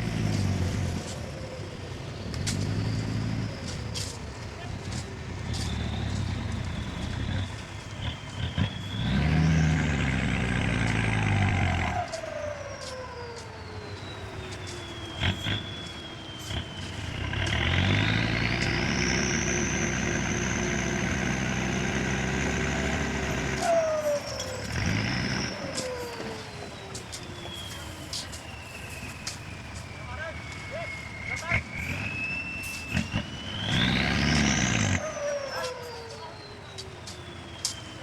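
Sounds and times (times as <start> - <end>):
diesel engine revving: 0.0 - 38.0.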